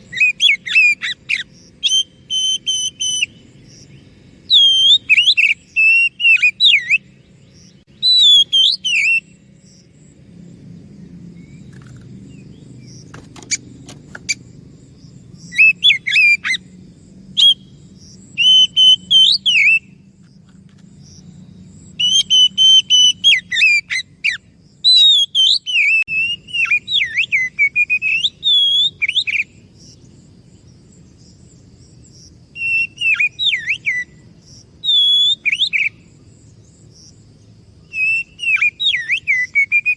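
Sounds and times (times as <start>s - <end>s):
bird singing whistled phrases: 0.0s - 3.4s, 4.5s - 9.4s, 15.5s - 16.7s, 17.4s - 17.8s, 18.4s - 20.0s, 22.0s - 29.6s, 32.6s - 34.2s, 34.8s - 36.0s, 37.9s - 39.9s.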